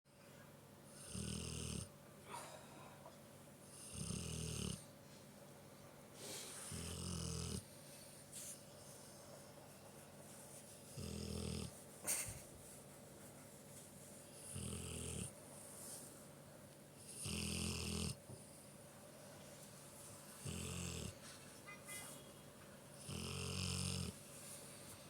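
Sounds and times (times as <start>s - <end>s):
dog snoring: 0.9s - 1.9s, 3.6s - 4.9s, 6.3s - 7.6s, 10.9s - 11.8s, 14.4s - 15.4s, 17.0s - 18.2s, 20.4s - 21.2s, 23.0s - 24.2s.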